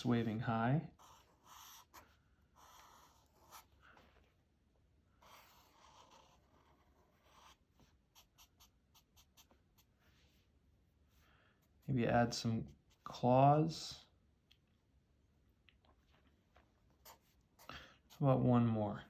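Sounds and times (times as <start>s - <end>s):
pen scratching on paper: 0.1s - 3.8s, 5.2s - 10.0s, 17.0s - 18.5s.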